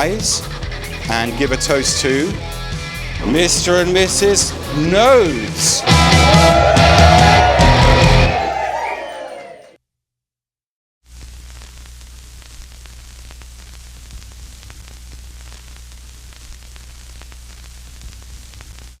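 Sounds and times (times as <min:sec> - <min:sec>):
faint crackles: 0:11.1 - 0:19.0
static hiss: 0:11.1 - 0:19.0.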